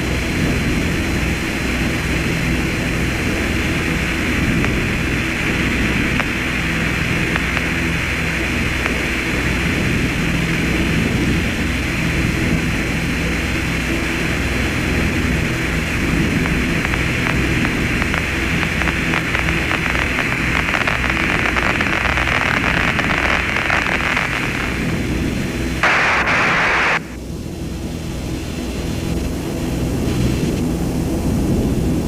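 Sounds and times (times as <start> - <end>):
loud hiss-like noise: 0.0 - 31.1
low hum: 0.0 - 32.0
faint crackling: 4.2 - 9.3, 15.0 - 27.2.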